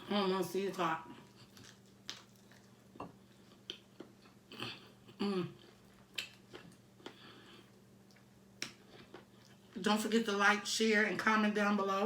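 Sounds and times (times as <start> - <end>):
chewing crunches: 1.1 - 9.8
person humming mm: 4.5 - 5.6.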